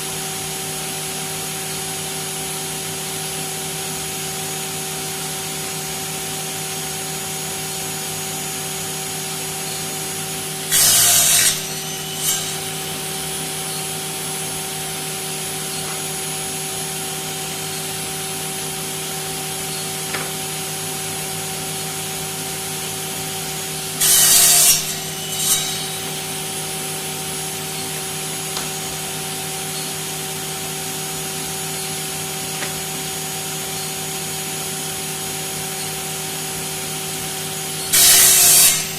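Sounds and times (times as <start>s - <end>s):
power saw motor hum: 10.4s - 18.9s, 23.7s - 28.8s
saw cutting rasp: 10.6s - 14.5s, 23.9s - 26.9s, 37.9s - 38.9s.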